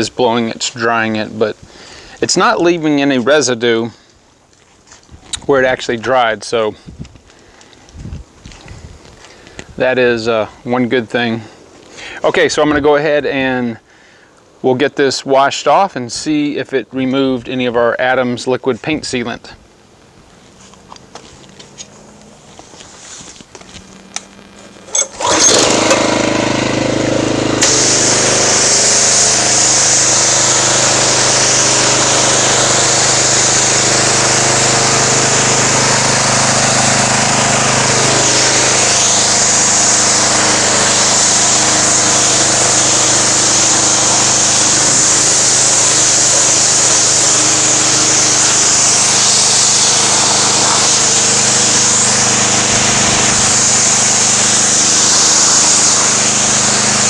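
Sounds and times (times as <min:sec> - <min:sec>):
pressure washer humming: 0:20.9 - 0:57.0
water jet hissing: 0:24.8 - 0:57.0.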